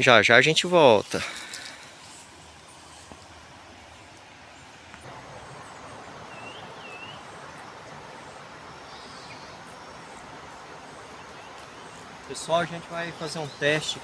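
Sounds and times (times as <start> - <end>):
soft outdoor rushing: 0.0 - 14.0
bird chirps: 5.5 - 7.7, 11.1 - 14.0.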